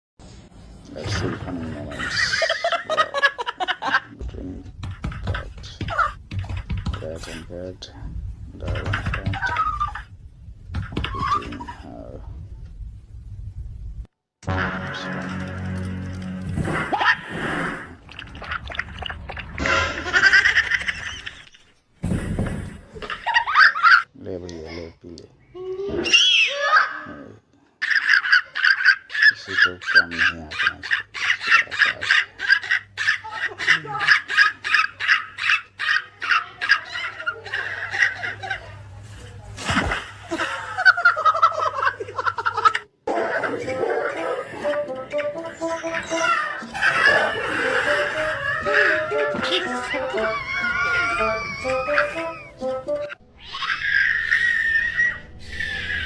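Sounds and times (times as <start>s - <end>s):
people laughing: 1.9s - 4.2s, 29.6s - 35.0s, 40.2s - 45.0s, 45.6s - 52.7s
animal cries wavering pitch: 45.6s - 52.7s, 53.3s - 56.0s.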